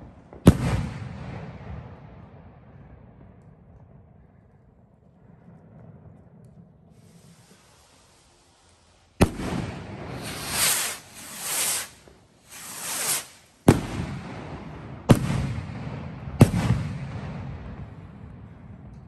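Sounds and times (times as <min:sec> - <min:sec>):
firework bangs: 0:00.0 - 0:03.4, 0:05.2 - 0:18.9
firework whooshes: 0:06.9 - 0:17.2.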